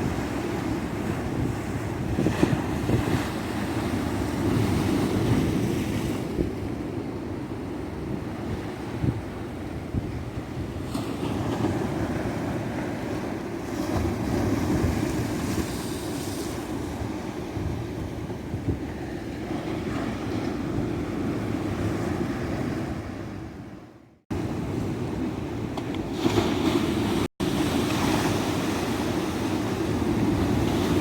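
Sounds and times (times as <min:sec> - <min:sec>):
ocean surf washing on beach: 0:24.3 - 0:31.0.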